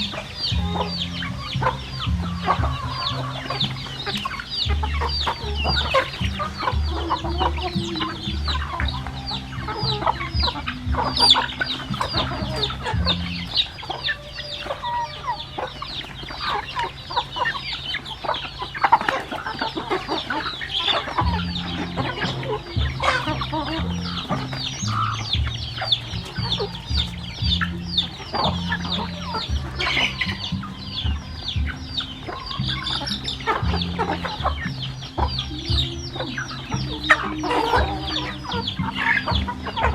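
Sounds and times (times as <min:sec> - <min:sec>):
chickens clucking and calling: 0:00.0 - 0:39.9.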